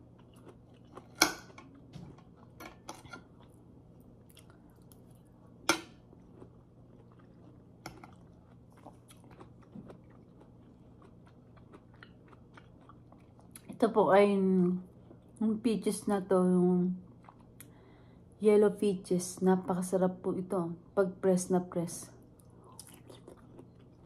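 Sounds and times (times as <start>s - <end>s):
chewing soft fruit: 0.0s - 2.6s, 3.2s - 13.8s, 17.0s - 18.0s, 22.3s - 24.0s.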